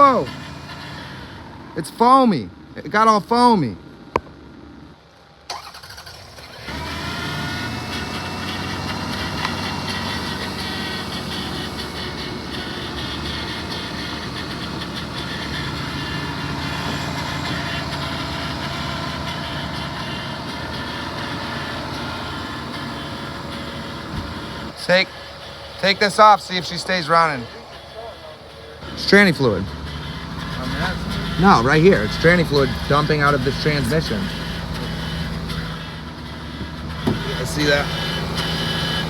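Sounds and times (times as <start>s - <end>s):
car engine starting and idling: 0.0s - 39.0s.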